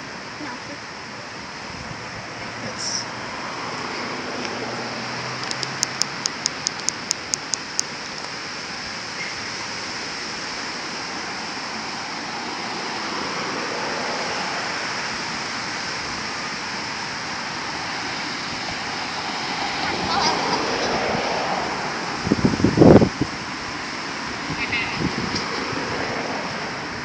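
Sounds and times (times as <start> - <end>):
wind on microphone: 1.6 - 2.6, 3.2 - 27.0
sharp high clicks: 5.4 - 8.3.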